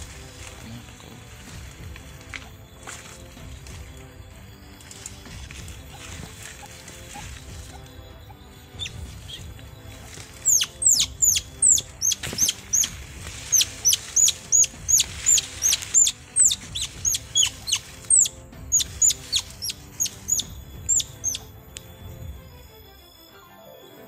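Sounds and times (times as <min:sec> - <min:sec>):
high-pitched animal chirps: 0:10.4 - 0:21.5.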